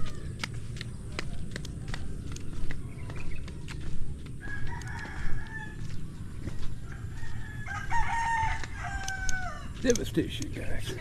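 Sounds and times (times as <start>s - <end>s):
steady low rumble: 0.0s - 7.7s
rooster crowing: 4.4s - 9.8s.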